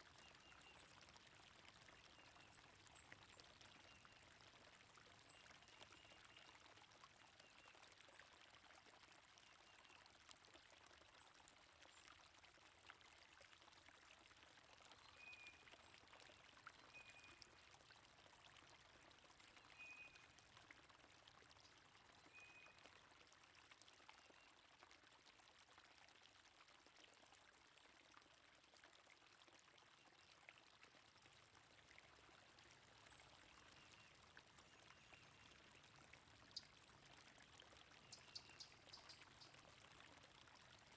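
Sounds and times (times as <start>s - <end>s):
stream flowing: 30.4s - 40.9s.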